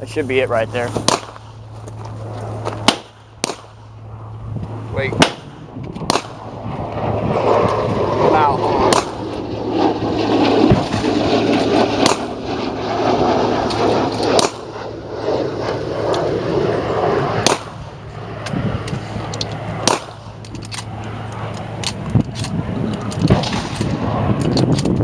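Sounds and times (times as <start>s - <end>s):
gunshots: 1.0s - 1.6s, 2.6s - 4.0s, 5.0s - 17.9s, 19.8s - 20.4s, 23.2s - 24.8s.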